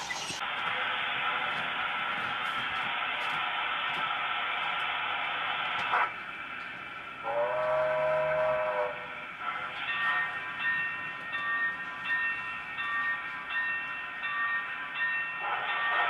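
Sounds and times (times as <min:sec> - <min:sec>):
locomotive whistle blast: 0:07.2 - 0:09.1.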